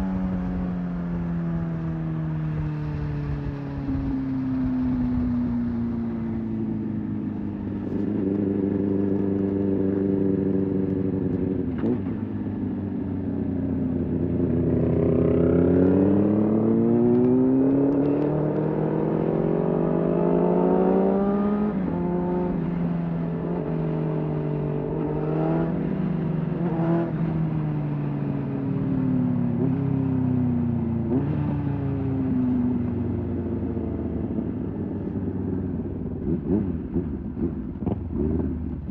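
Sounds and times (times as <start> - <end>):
motorcycle engine revving: 13.6 - 28.2, 29.5 - 38.9.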